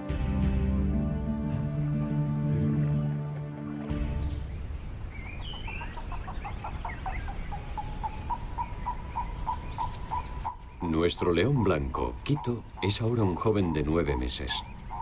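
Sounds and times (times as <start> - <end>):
low rumble: 4.0 - 10.8
bird calling repeated notes: 4.0 - 15.0
high bird chirps: 4.0 - 15.0.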